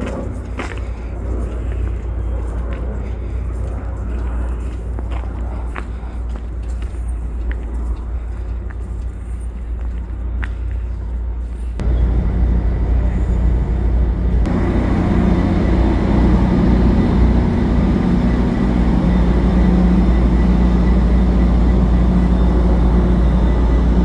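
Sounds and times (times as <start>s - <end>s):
diesel locomotive engine droning: 0.0s - 24.0s.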